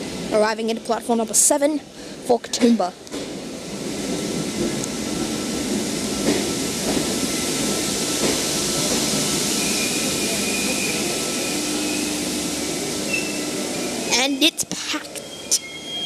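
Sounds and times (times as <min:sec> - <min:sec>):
train wheels rumbling on rails: 0:00.0 - 0:16.0
high brake squeal: 0:09.6 - 0:12.3, 0:13.0 - 0:14.0, 0:15.2 - 0:16.0.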